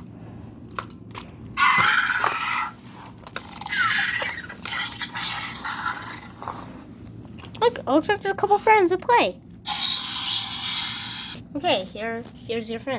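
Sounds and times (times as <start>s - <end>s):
electronic toy raptor screeches: 1.6s - 2.8s, 3.4s - 5.7s, 9.7s - 11.4s.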